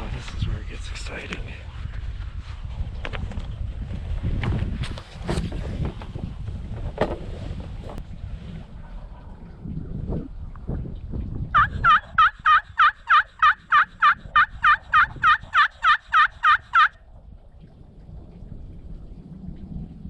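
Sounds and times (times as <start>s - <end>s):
wind rumbling on microphone: 0.0s - 20.0s
turkey yelps: 11.6s - 17.0s.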